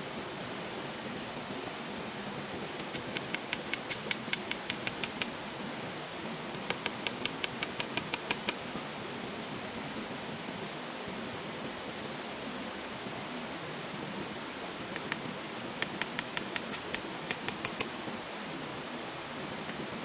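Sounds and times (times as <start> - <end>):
quick sharp taps: 2.8 - 5.3, 6.6 - 8.8, 15.8 - 17.9.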